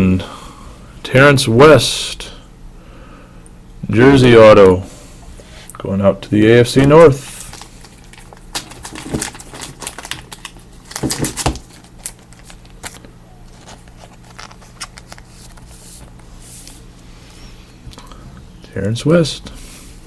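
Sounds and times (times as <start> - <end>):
trading cards and packaging handled: 6.8 - 17.0.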